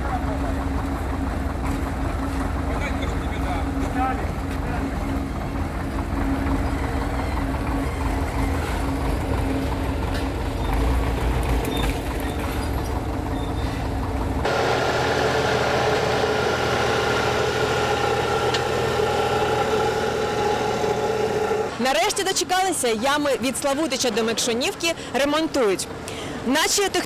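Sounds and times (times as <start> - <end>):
heavy vehicle engine rumbling: 0.0 - 26.6
high steady machine drone: 14.4 - 21.8.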